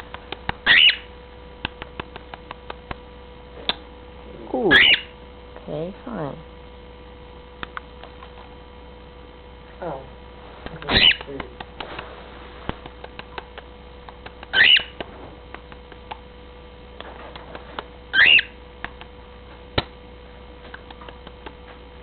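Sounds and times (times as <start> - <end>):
bird calls: 0.6 - 1.1, 4.7 - 5.2, 10.8 - 11.3, 14.4 - 15.0, 18.1 - 18.6.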